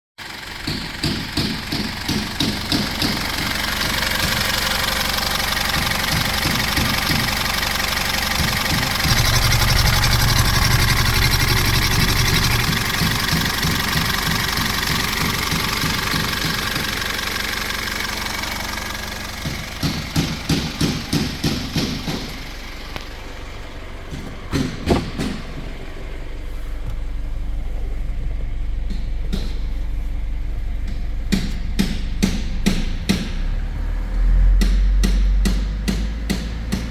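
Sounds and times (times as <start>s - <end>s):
diesel engine starting and revving: 0.2s - 36.9s
rhythmic chugging: 8.4s - 16.9s
low steady hum: 22.6s - 34.6s
knocks: 24.1s - 25.7s.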